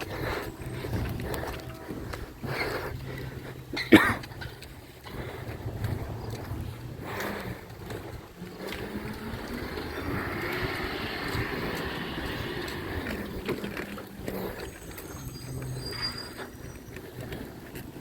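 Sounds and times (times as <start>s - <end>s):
truck engine running: 0.0s - 15.9s.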